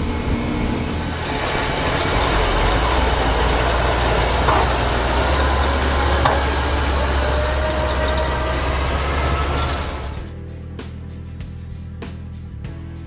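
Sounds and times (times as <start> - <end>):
heavy engine running: 0.0 - 10.4.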